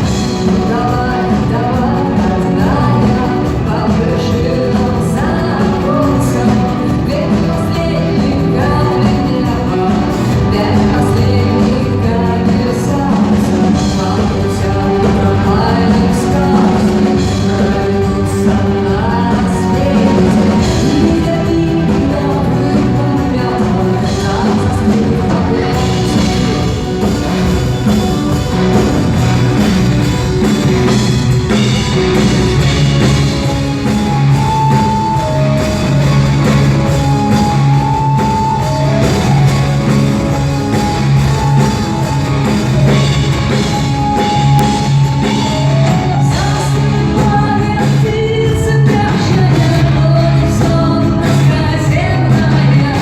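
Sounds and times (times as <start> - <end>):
drums: 0.0 - 53.0
guitar: 0.0 - 53.0
held singing melody: 0.0 - 53.0.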